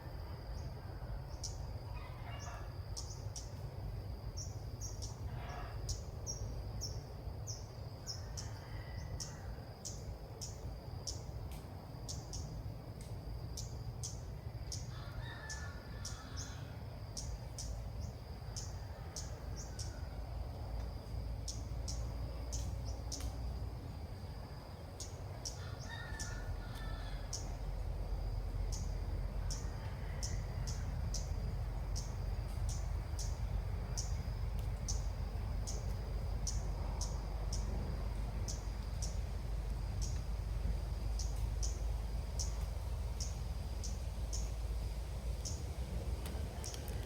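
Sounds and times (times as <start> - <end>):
high insect drone: 0.0 - 47.0
distant rooster crowing: 0.1 - 3.1, 5.3 - 5.9, 8.0 - 10.0, 14.7 - 17.0, 18.4 - 20.6, 25.4 - 27.7, 29.0 - 31.5
songbird chirping: 0.2 - 23.6, 24.2 - 47.0
low background rumble: 9.0 - 47.0
small bird chirping: 41.1 - 44.6.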